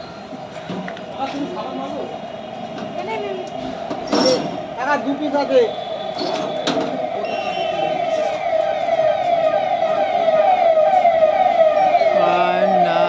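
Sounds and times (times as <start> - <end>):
electronic siren wailing: 5.5 - 13.0.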